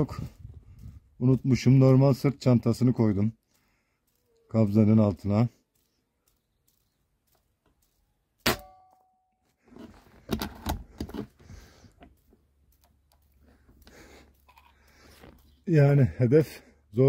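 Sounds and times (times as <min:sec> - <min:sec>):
air rifle shot with metallic ring: 0:08.4 - 0:09.2.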